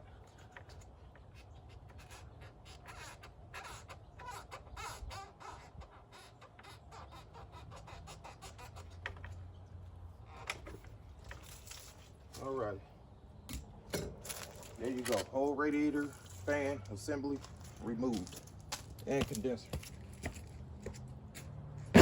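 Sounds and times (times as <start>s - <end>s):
harsh bird calls: 0.0s - 9.0s.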